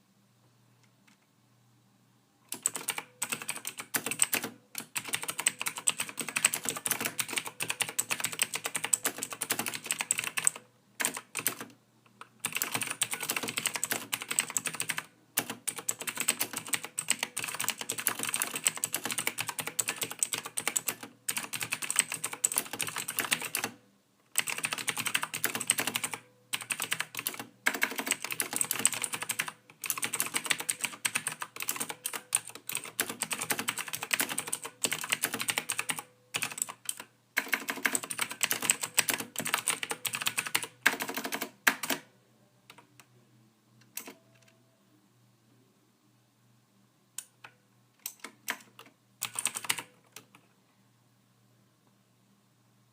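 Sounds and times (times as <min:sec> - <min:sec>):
fast typing on keyboard: 0:02.5 - 0:11.7, 0:12.3 - 0:42.0, 0:48.0 - 0:50.3.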